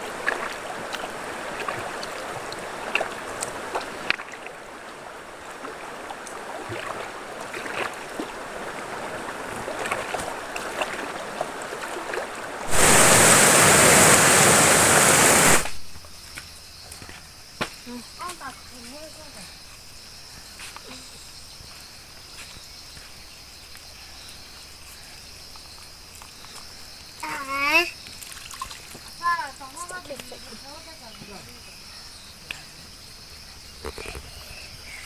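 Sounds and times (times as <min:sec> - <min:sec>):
river water running: 0:00.0 - 0:16.2, 0:18.6 - 0:35.0
small splashes and clicks: 0:00.2 - 0:04.6, 0:05.5 - 0:08.3, 0:09.1 - 0:12.4, 0:25.5 - 0:30.5
loud even rushing noise: 0:12.7 - 0:15.8.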